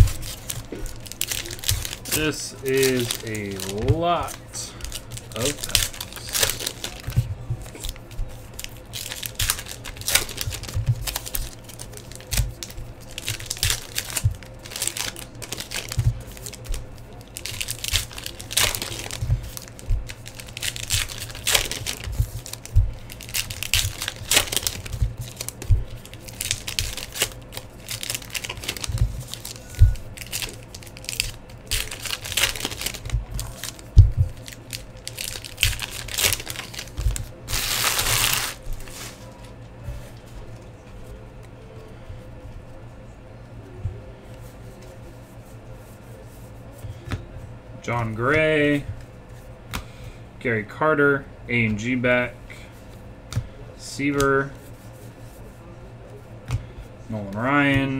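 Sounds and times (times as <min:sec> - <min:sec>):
wrappers tearing and crinkling: 0:00.0 - 0:39.6.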